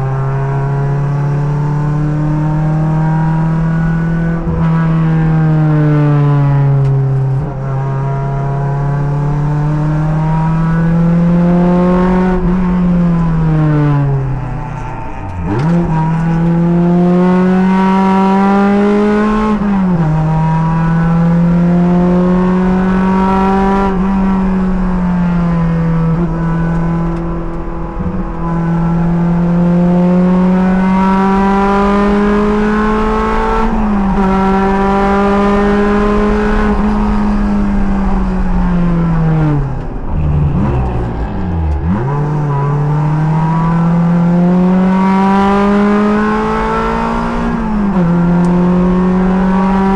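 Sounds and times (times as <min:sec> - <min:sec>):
race car engine accelerating: 0:00.0 - 0:49.9
engine downshift blips: 0:30.8 - 0:49.9.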